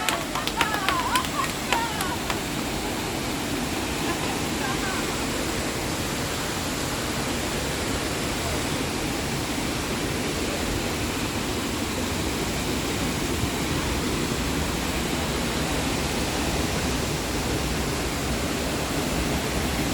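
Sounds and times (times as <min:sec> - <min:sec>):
waterfall pouring into pool: 0:00.0 - 0:19.9.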